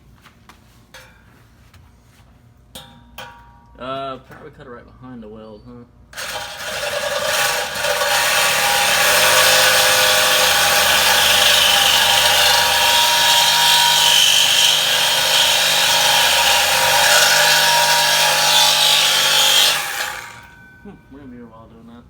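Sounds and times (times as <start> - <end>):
power tool cutting exhaust pipe: 6.2 - 20.8.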